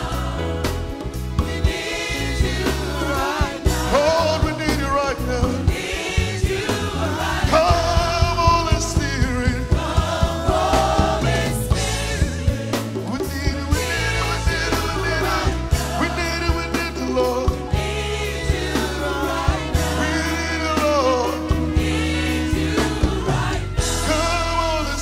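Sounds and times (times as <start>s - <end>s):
drums beating: 0.0s - 25.0s
people singing: 0.0s - 25.0s.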